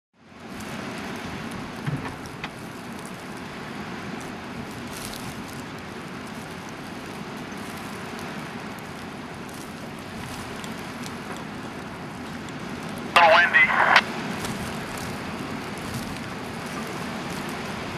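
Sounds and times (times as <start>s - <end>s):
blizzard wind rushing: 0.3s - 17.9s
small knocks: 1.8s - 2.6s.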